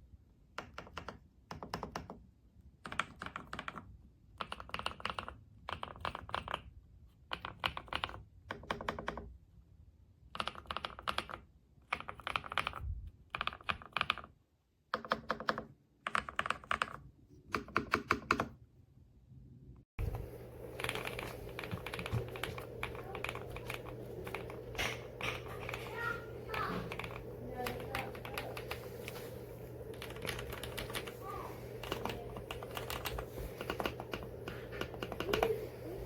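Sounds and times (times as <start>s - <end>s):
typing on mechanical keyboard: 0.6s - 2.2s, 2.8s - 9.3s, 10.3s - 14.3s, 14.9s - 18.5s, 20.1s - 36.0s
low hum: 20.0s - 36.0s.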